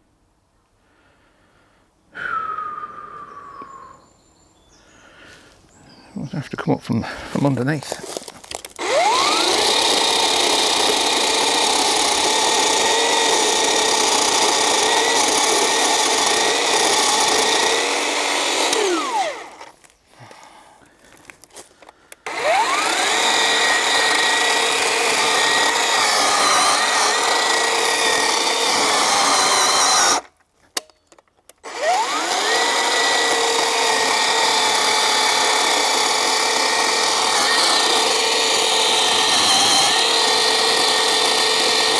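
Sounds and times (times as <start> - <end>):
electric chainsaw cutting log: 7.4 - 19.9, 22.1 - 30.4, 31.5 - 41.9.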